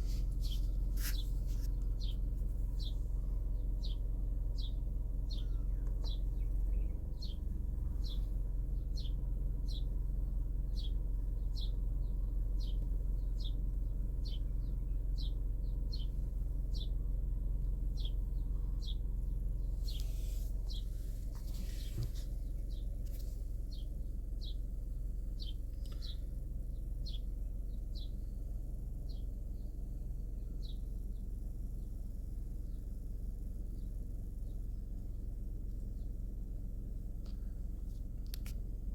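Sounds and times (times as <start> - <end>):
bird chirping: 0.2 - 10.0, 25.4 - 28.2.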